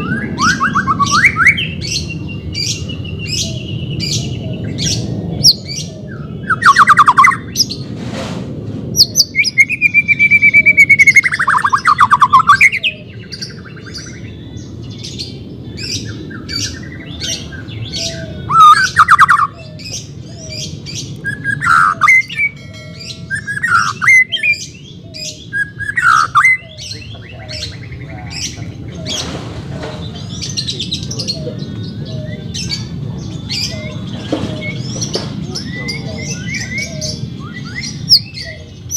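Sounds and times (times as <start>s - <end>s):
bird singing whistles and trills: 0.0s - 7.8s, 9.0s - 29.3s, 30.0s - 38.9s.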